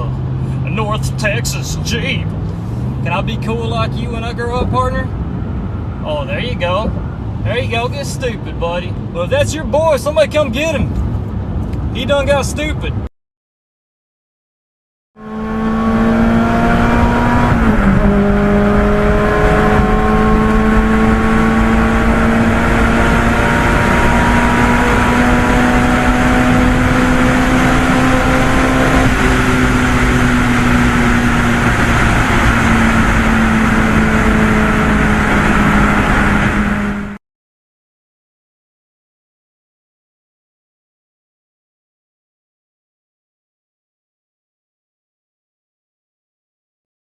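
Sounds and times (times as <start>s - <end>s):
car engine under load: 0.0s - 10.0s, 15.3s - 37.2s
road and wind noise: 0.0s - 13.1s, 15.2s - 37.2s.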